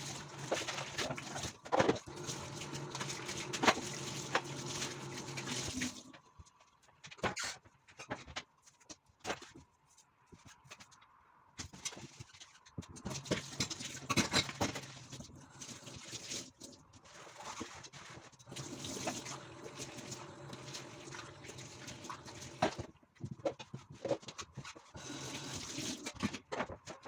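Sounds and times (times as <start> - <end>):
running water: 0.0 - 6.2, 13.1 - 22.9, 24.9 - 26.2.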